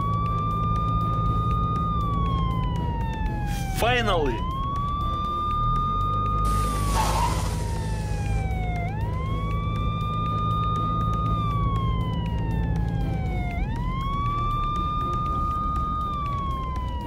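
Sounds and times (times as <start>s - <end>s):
police siren wailing: 0.0s - 17.0s
brief hiss of noise: 6.7s - 7.8s.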